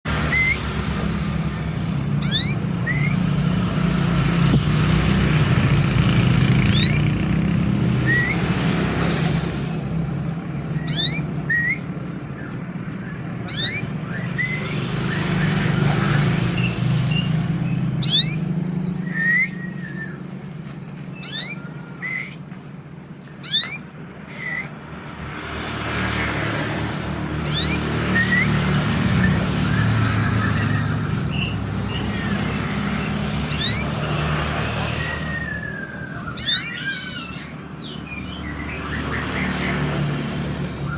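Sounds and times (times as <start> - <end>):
songbird whistling and chirping: 0.2 - 0.8, 2.1 - 3.9, 6.4 - 8.7, 10.5 - 25.2, 27.4 - 39.8.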